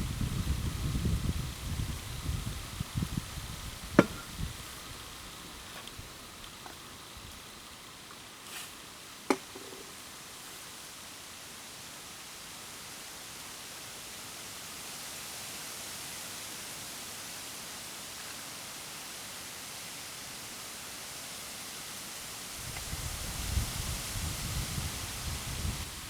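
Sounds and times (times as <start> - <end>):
campfire hissing: 0.0 - 26.0
sharp wood crack: 3.9 - 4.5.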